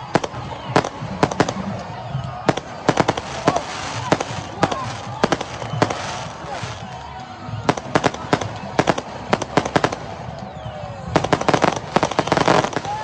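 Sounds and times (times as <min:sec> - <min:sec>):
crowd din: 0:00.0 - 0:13.0
firecrackers banging: 0:00.0 - 0:13.0.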